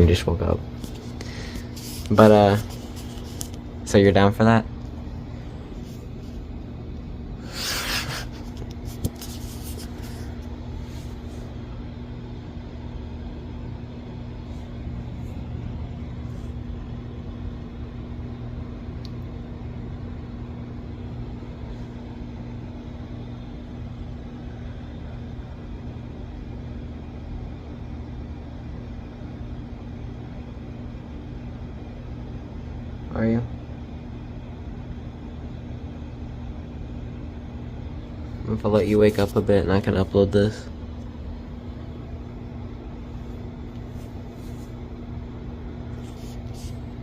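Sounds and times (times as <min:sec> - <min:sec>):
low mechanical hum: 0:00.0 - 0:47.0
noisy rustle: 0:00.7 - 0:03.6, 0:07.4 - 0:11.6, 0:43.1 - 0:45.0, 0:45.9 - 0:47.0.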